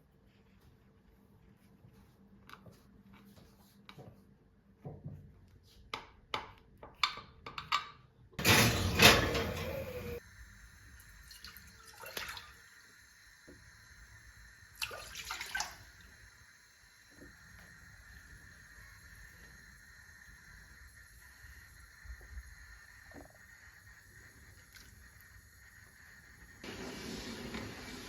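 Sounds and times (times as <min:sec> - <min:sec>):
kitchen clicks and taps: 0:05.9 - 0:09.8
water running: 0:08.4 - 0:10.2, 0:10.9 - 0:28.0.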